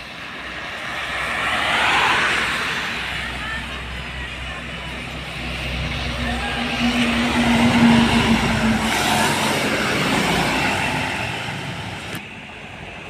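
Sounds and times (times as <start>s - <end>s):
road background noise: 0.0s - 13.0s
truck passing: 0.0s - 13.0s.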